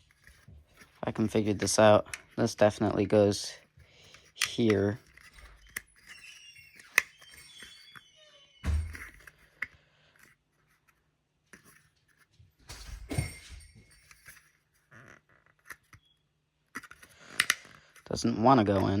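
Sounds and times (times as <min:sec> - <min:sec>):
small plastic parts clicking: 0:04.0 - 0:08.0, 0:16.7 - 0:18.1.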